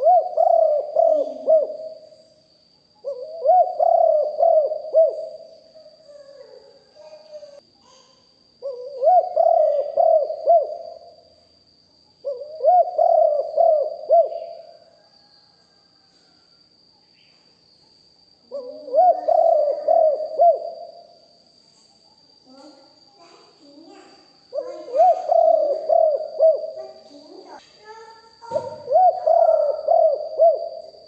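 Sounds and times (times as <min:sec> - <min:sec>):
dove cooing: 0:00.0 - 0:02.1, 0:03.0 - 0:06.7, 0:08.6 - 0:11.2, 0:12.2 - 0:15.0, 0:18.5 - 0:21.0, 0:24.4 - 0:27.6, 0:28.4 - 0:31.0
thin steady high tone: 0:00.0 - 0:31.0.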